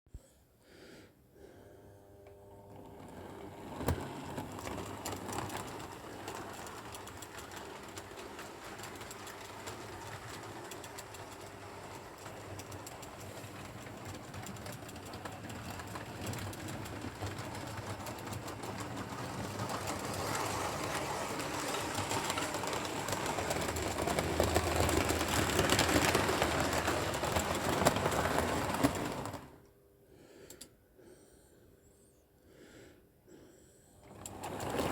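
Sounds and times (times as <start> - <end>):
model train motors humming: 2.1 - 29.5
wheels rattling over rails: 2.7 - 29.6, 34.0 - 34.9.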